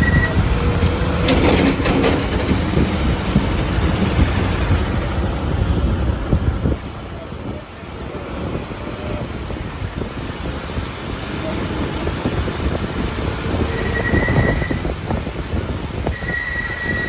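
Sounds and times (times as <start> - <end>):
vehicle rumbling on the move: 0.0 - 17.0
knocks: 0.8 - 4.5.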